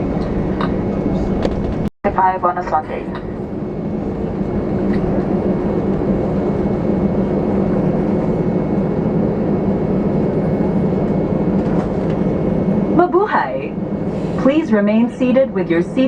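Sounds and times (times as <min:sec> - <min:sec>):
airplane cabin engine roar: 0:00.0 - 0:16.0.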